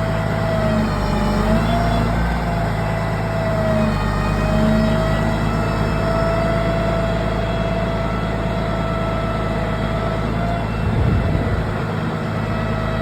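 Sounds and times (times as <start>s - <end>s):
heavy vehicle engine running: 0.0s - 13.0s
steady whine: 7.0s - 13.0s
low rumble: 10.8s - 11.9s.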